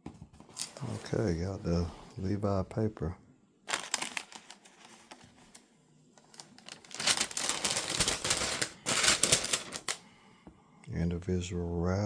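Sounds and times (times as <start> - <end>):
wrapping paper rustling and crinkling: 3.7 - 5.6, 6.2 - 10.0.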